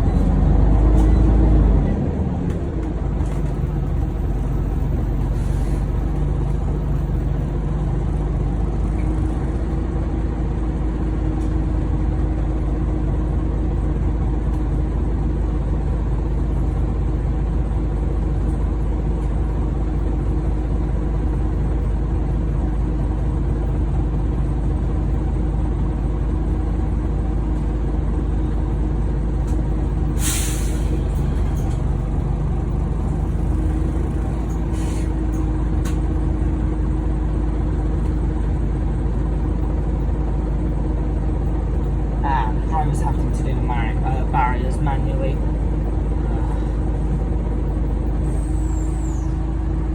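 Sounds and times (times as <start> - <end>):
bus diesel engine running: 0.0 - 49.9
air brake hiss: 30.2 - 31.0, 34.7 - 35.2.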